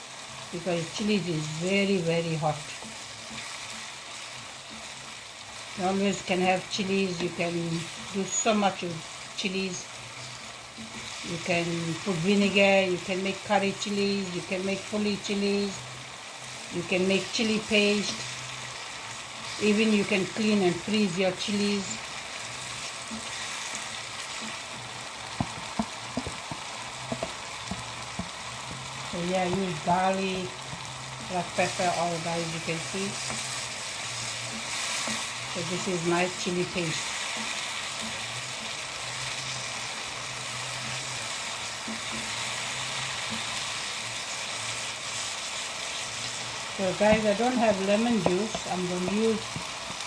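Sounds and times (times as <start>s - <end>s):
chilli paste sizzling in a pan: 0.0s - 50.0s.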